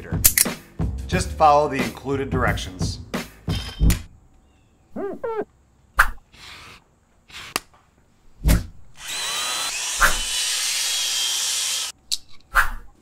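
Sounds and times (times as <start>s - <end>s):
power drill with faint whine: 9.0s - 11.9s.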